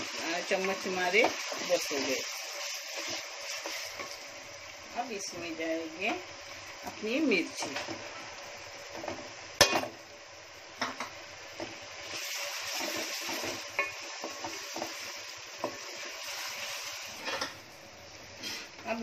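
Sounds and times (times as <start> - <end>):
chillies and onions sizzling in oil: 0.0 - 19.0.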